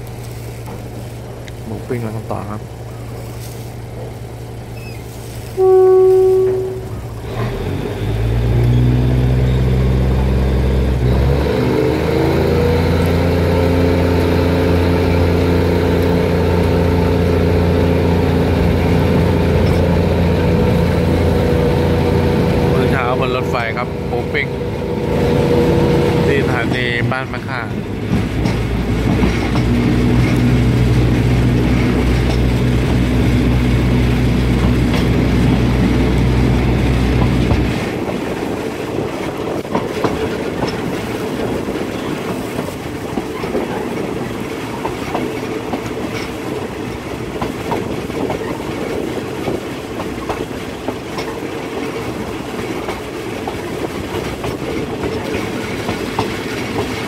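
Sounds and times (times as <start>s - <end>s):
train engine drone: 0.0s - 57.0s
train wheels rumbling: 0.0s - 57.0s
clicks from rail joints: 28.0s - 33.0s, 34.6s - 35.9s, 39.2s - 57.0s.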